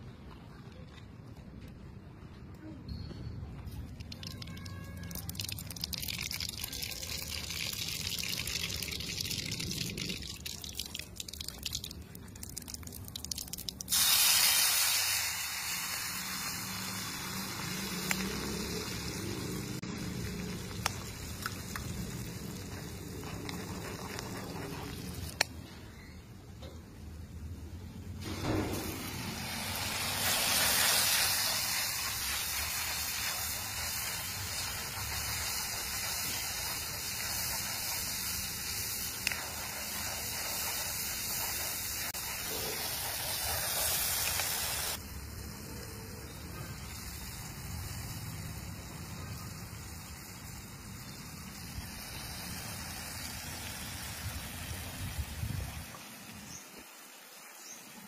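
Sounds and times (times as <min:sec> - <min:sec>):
puree sizzling in hot oil: 0:13.4 - 0:25.5, 0:28.2 - 0:58.0.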